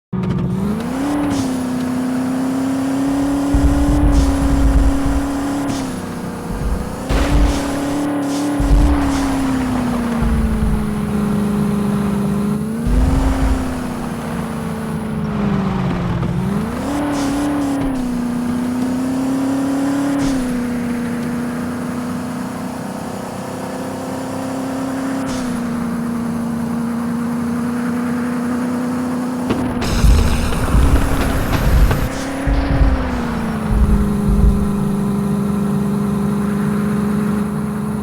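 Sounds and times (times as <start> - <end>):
car engine drone: 0.0 - 38.0
low thumps: 3.1 - 19.3, 29.5 - 35.8.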